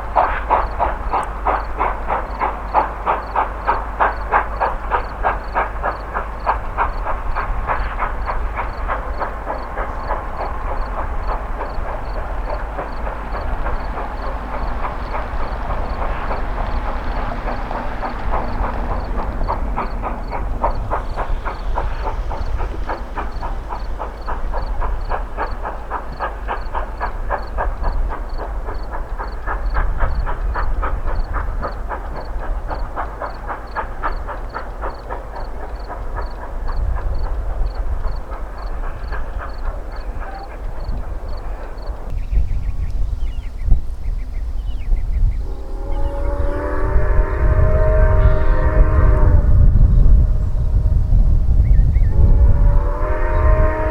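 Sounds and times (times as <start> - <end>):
steam locomotive chuffing: 0.0 - 53.9.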